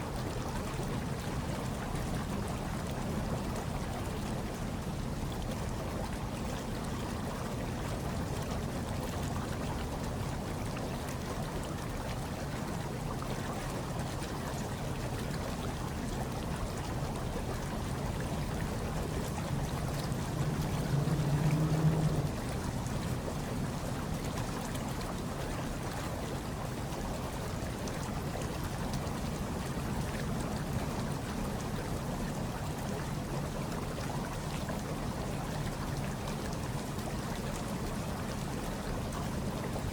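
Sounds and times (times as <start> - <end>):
hot tub water bubbling: 0.0 - 39.9.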